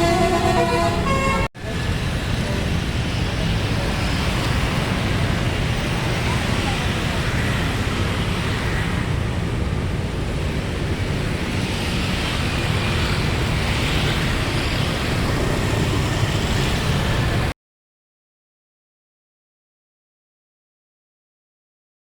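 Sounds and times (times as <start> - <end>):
road traffic rumble: 0.0 - 17.6.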